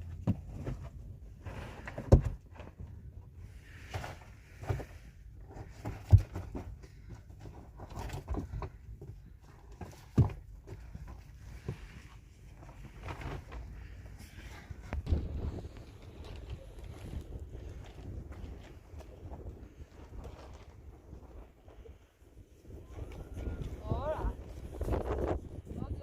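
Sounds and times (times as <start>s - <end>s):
scraping and rustling: 0.3s - 22.1s
heavy thuds: 14.7s - 18.6s.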